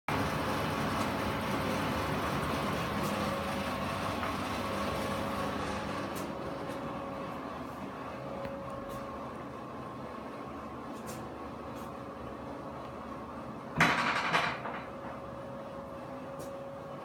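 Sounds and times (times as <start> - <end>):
humidifier humming: 0.1 - 17.0.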